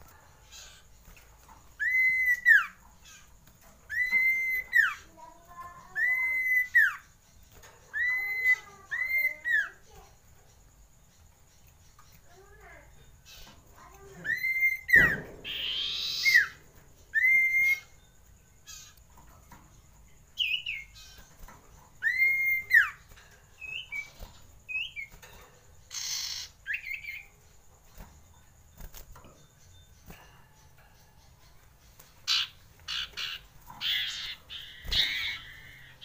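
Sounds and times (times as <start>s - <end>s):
bird whistling: 1.8s - 2.8s, 3.9s - 5.0s, 5.9s - 7.0s, 14.2s - 18.0s, 22.0s - 23.0s, 32.3s - 36.0s.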